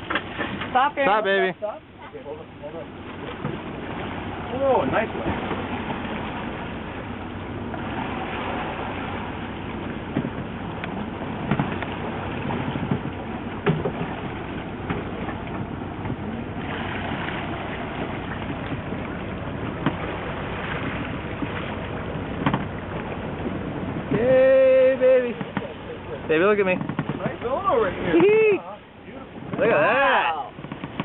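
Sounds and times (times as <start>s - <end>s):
boat motor running: 0.0s - 31.0s
water rushing: 0.0s - 31.0s
wind: 0.0s - 31.0s
sharp knocks: 22.4s - 22.7s, 26.7s - 27.4s.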